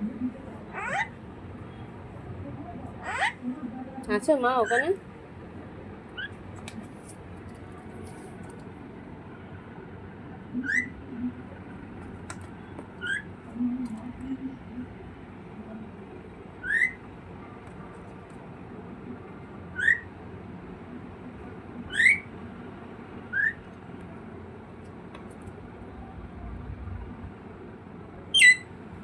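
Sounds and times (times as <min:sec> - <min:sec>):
bird whistled calls: 0:16.6 - 0:17.0, 0:19.8 - 0:20.1, 0:21.9 - 0:22.3, 0:23.3 - 0:23.6, 0:28.3 - 0:28.7.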